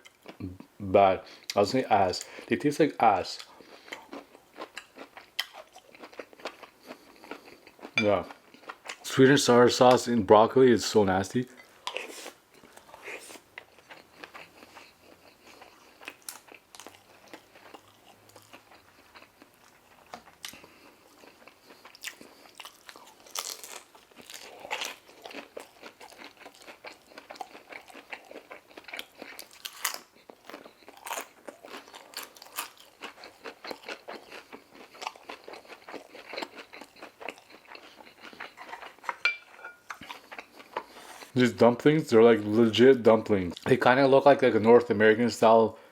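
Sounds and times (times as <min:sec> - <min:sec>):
person chewing food: 0:00.0 - 0:00.7, 0:03.2 - 0:09.0, 0:11.5 - 0:41.4.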